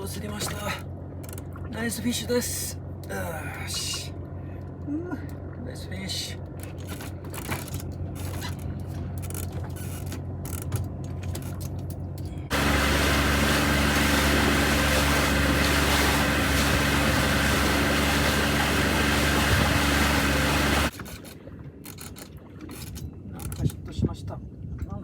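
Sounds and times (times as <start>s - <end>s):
outboard motor running: 6.3s - 21.1s.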